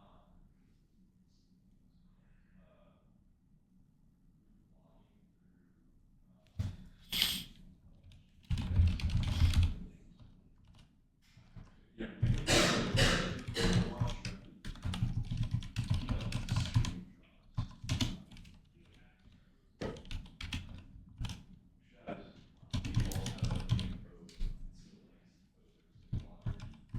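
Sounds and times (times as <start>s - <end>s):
typing on a computer keyboard: 8.0s - 10.9s, 11.6s - 21.6s, 22.4s - 24.5s, 26.0s - 26.9s.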